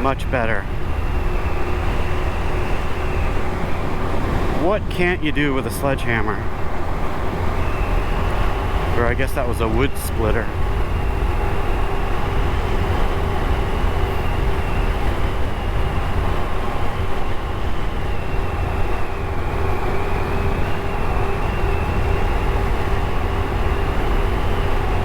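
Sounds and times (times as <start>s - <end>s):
motorcycle engine humming: 0.0s - 25.0s
wind rushing over microphone: 0.0s - 25.0s.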